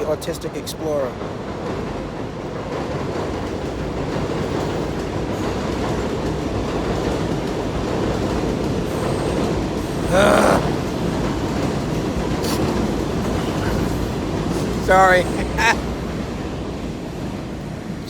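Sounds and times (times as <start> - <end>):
subway train wheels rumbling: 0.0 - 18.0
train wheel squeal: 8.8 - 10.1.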